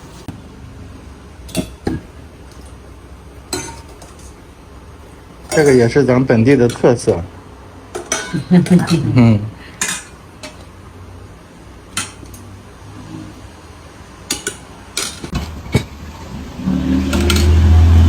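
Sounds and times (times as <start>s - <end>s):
bowls and utensils clinking: 1.5s - 2.8s, 3.4s - 4.4s, 5.0s - 7.3s, 7.9s - 10.8s, 11.9s - 12.5s, 14.2s - 18.0s
loud low humming drone: 15.6s - 18.0s.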